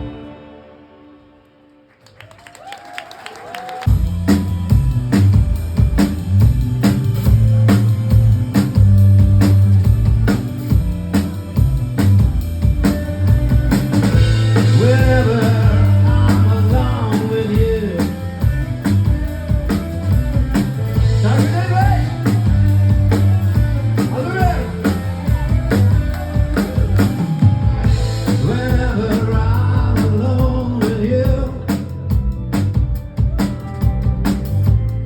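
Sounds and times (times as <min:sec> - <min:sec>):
rock band playing: 0:00.0 - 0:01.4, 0:03.8 - 0:35.0
person singing: 0:14.6 - 0:18.4, 0:24.1 - 0:32.0.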